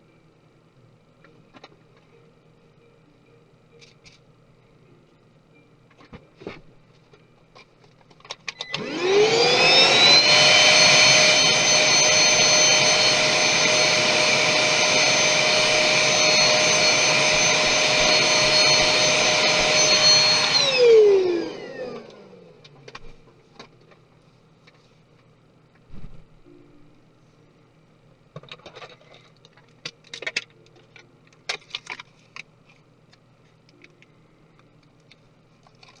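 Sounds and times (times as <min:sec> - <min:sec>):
electric fan motor whining: 0:08.5 - 0:23.1.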